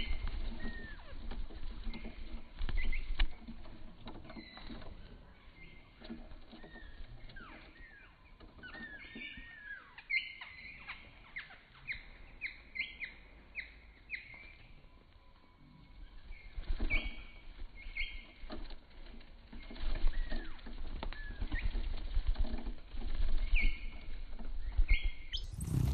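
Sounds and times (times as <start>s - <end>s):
small bird chirping: 0.0s - 3.5s, 4.2s - 18.5s, 23.4s - 25.9s
rustling: 25.3s - 25.9s.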